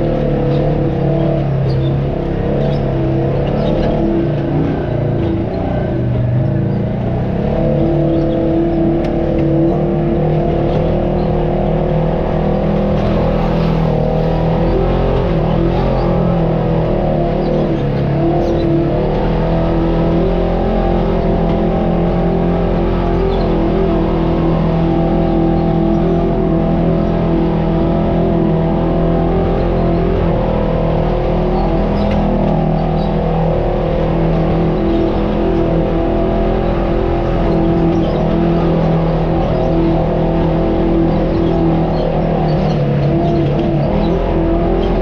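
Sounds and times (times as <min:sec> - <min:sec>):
off-road vehicle engine running: 0:00.0 - 0:45.0.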